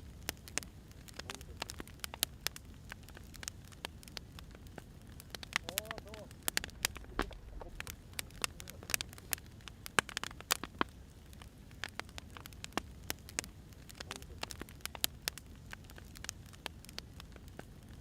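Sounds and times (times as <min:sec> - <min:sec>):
wood fire crackling: 0:00.0 - 0:18.0
low rumble: 0:05.6 - 0:09.2.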